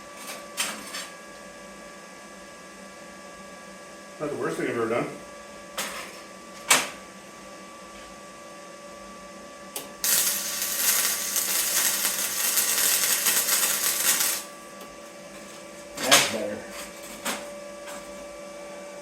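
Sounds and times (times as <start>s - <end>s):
welding arc crackling: 10.0s - 14.6s.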